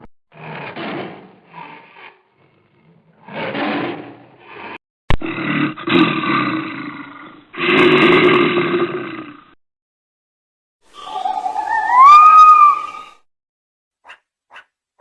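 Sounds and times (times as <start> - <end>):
big cat roaring: 0.3 - 9.6.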